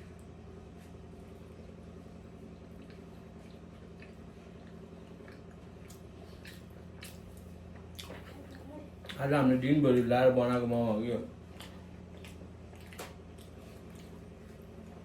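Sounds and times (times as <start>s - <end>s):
wet mouth eating sounds: 2.7s - 9.2s, 11.5s - 15.0s.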